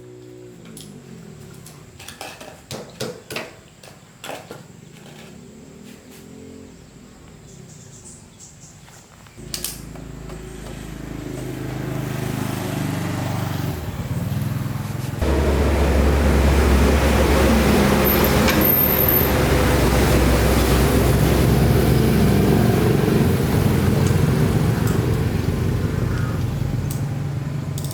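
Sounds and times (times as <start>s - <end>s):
motorbike engine running: 9.4s - 27.9s.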